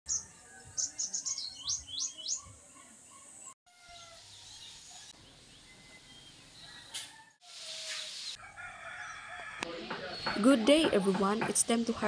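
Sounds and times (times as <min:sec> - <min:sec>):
outdoor hiss: 0:07.4 - 0:08.4.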